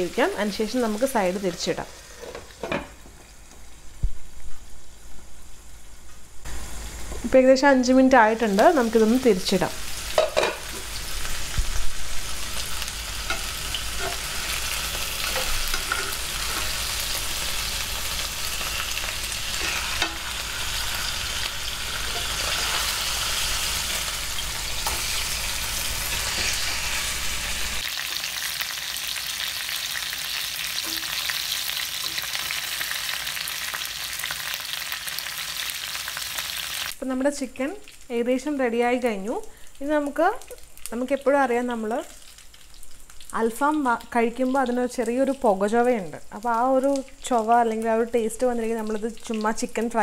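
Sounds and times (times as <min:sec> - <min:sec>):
chicken sizzling in a pan: 0:06.5 - 0:38.3.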